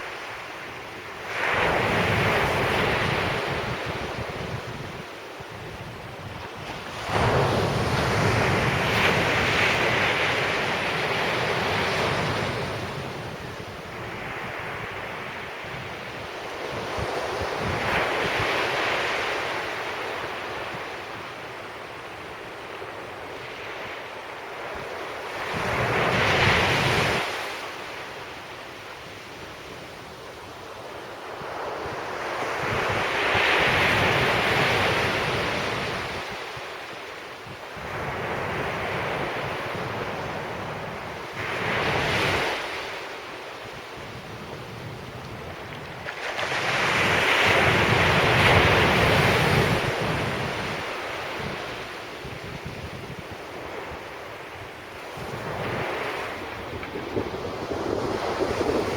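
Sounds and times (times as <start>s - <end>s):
sea waves breaking on beach: 6.5s - 21.5s, 30.7s - 58.9s
wind buffeting microphone: 43.6s - 58.9s.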